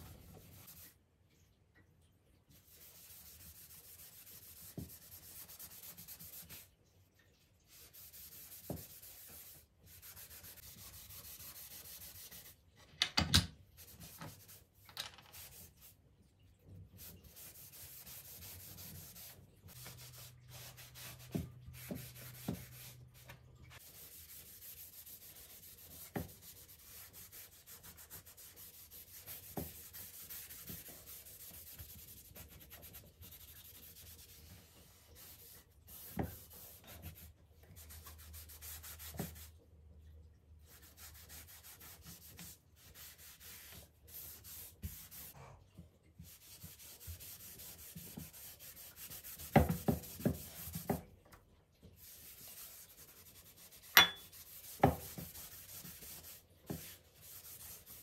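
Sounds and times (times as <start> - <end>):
soft rubbing and handling: 13.7 - 39.6.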